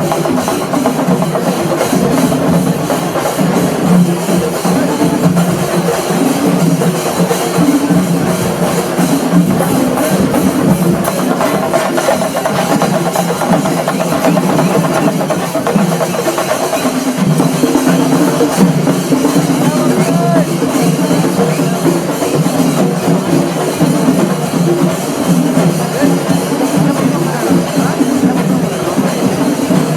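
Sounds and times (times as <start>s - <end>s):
drums and percussion: 0.0s - 29.9s.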